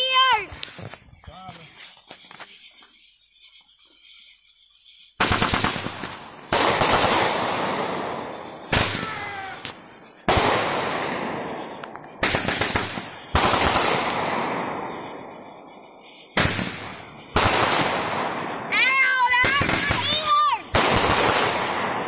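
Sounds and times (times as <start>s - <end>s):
firework crackling: 4.0s - 22.0s
firework bangs: 5.2s - 22.0s.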